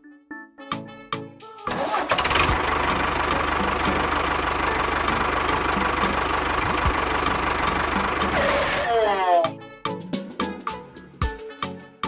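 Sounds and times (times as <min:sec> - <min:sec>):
tractor engine knocking: 0:01.7 - 0:08.9.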